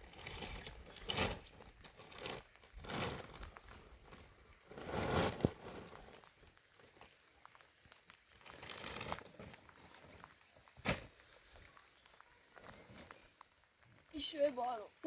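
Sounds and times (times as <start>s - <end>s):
rustling and crinkling: 0.0s - 14.8s.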